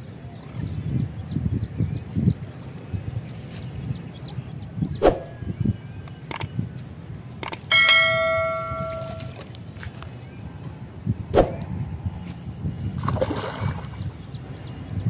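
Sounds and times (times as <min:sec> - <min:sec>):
sharp clicks: 0:06.0 - 0:06.6, 0:07.4 - 0:08.2
metal bell ringing: 0:07.7 - 0:09.4.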